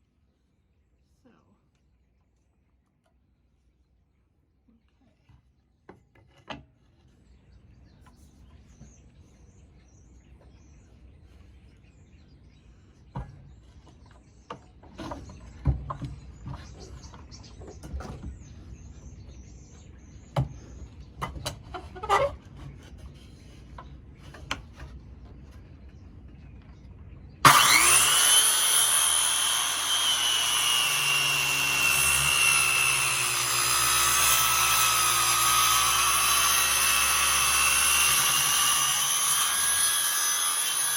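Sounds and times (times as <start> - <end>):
electric power tool whining: 27.4 - 40.9.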